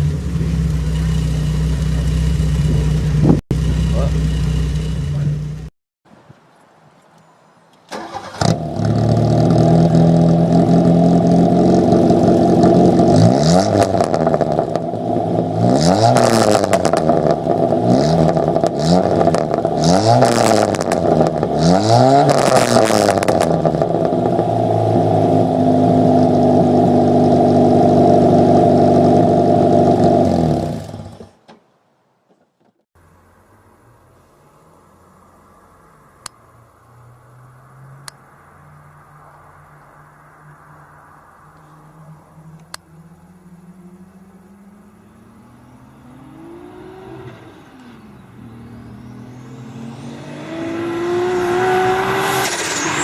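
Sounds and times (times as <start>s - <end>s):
car engine starting and revving: 7.9s - 31.4s, 34.9s - 53.0s.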